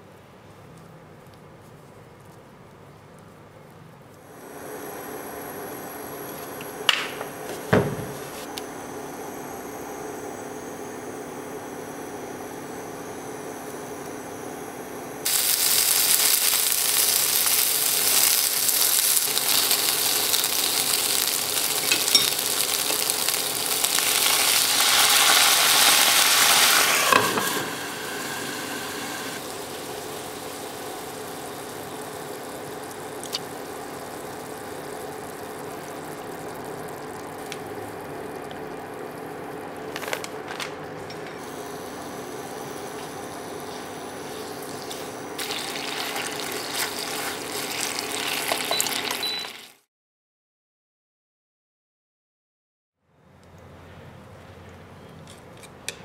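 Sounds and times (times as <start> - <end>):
food sizzling in a pan: 15.2 - 37.4, 41.4 - 49.9.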